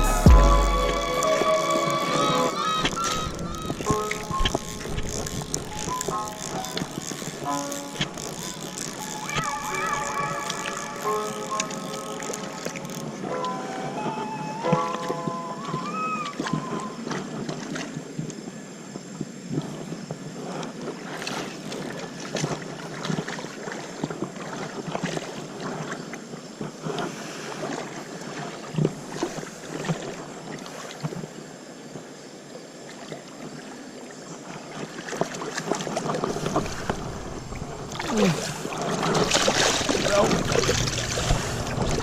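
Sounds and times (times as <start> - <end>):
rushing river water: 0.0 - 42.0
short knocks and splashes: 37.9 - 42.0.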